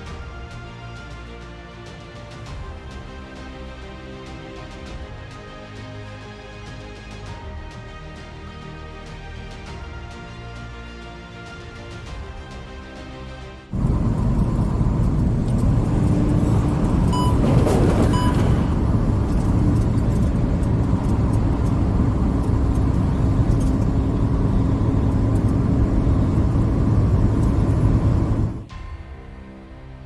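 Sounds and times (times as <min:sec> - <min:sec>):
vehicle engine and road noise: 0:13.7 - 0:28.8
short electronic beeps: 0:17.1 - 0:18.8.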